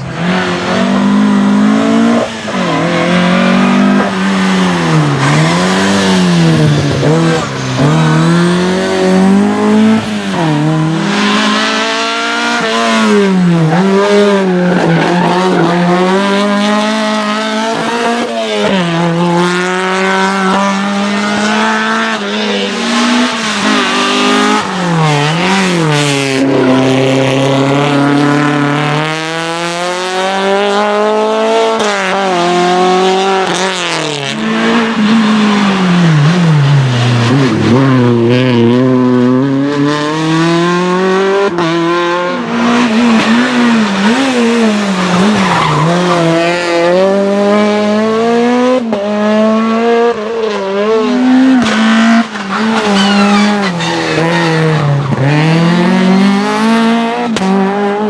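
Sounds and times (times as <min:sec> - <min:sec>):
race car engine revving: 0:00.0 - 0:58.0
tyres squealing: 0:42.8 - 0:47.4, 0:52.2 - 0:56.2.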